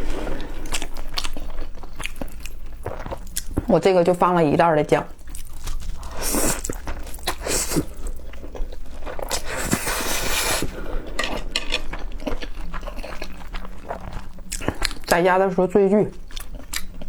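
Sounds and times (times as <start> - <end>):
chewing with wet clicks: 0.6 - 3.8, 4.5 - 9.5, 11.0 - 15.3, 16.1 - 17.0
slurping noodles: 6.0 - 8.2, 9.2 - 11.6.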